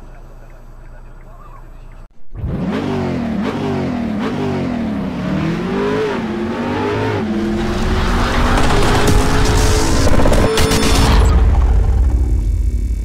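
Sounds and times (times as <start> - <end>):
car engine revving: 2.2 - 12.5.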